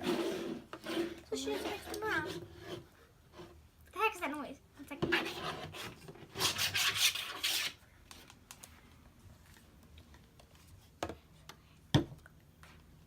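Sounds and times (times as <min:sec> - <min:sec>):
bottles scraping on tabletop: 0:00.0 - 0:02.8.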